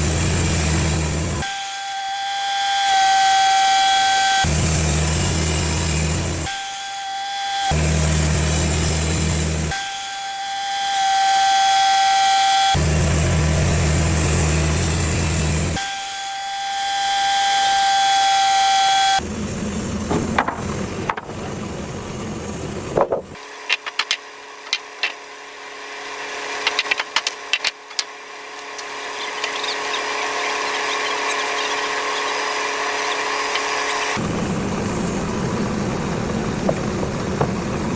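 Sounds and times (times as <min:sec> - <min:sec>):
bandsaw mill whining: 0:00.0 - 0:37.9
sharp knocks and clatter: 0:20.1 - 0:21.6, 0:22.9 - 0:25.2, 0:26.6 - 0:31.2.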